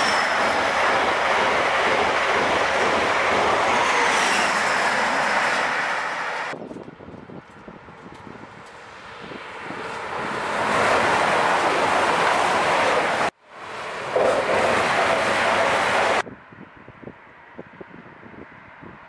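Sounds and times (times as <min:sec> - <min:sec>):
train passing with roar: 0:00.0 - 0:06.6, 0:08.0 - 0:16.2.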